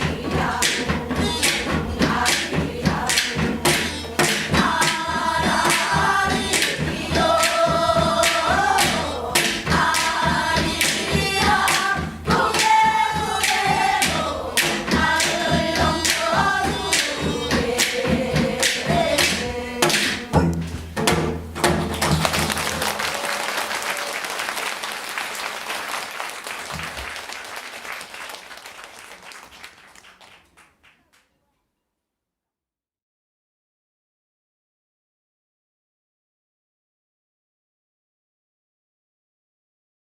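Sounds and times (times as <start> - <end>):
sharp percussion strikes: 0.0 - 23.0
folk singing with wavering notes: 0.0 - 23.4.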